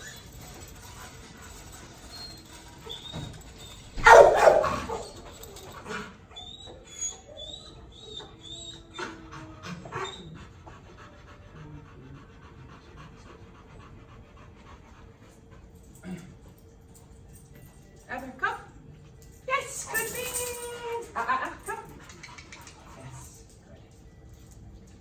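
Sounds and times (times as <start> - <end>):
dog panting: 0.0 - 18.0, 18.7 - 25.0
dog whining: 1.9 - 10.5.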